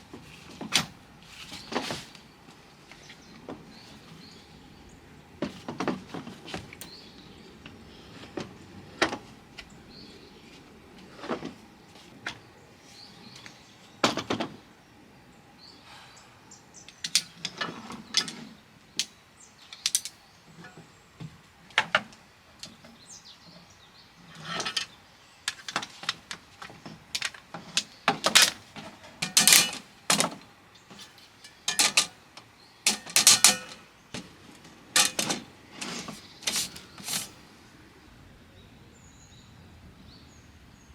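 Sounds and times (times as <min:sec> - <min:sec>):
hard objects clicking and rattling: 0:25.5 - 0:32.2, 0:32.8 - 0:34.3, 0:34.9 - 0:37.4.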